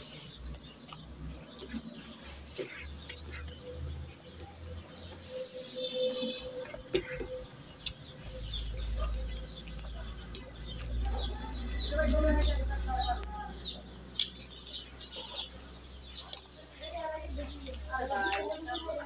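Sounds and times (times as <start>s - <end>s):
wet chewing: 0.0s - 4.5s, 6.1s - 13.4s, 14.0s - 16.6s, 17.6s - 19.0s
lip-smacking clicks: 6.1s - 8.2s, 9.6s - 15.6s.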